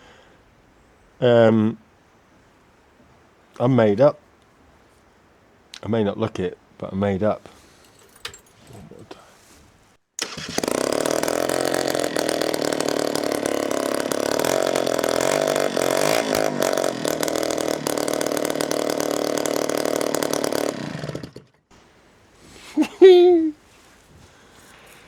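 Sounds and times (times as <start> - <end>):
loud scooter engine running: 10.2 - 21.6.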